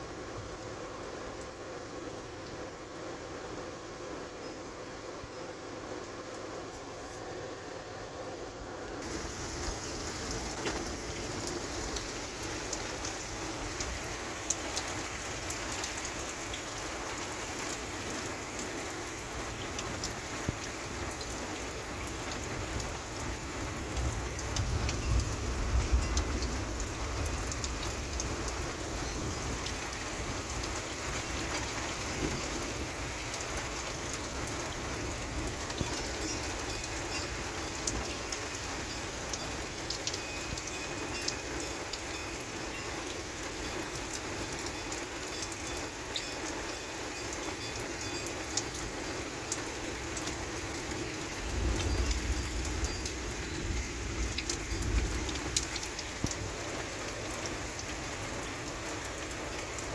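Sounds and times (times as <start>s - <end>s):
heavy rain falling: 0.0s - 59.9s
raindrop hits ticking: 9.0s - 59.9s
low thunder rumble: 22.4s - 37.0s, 50.8s - 59.1s.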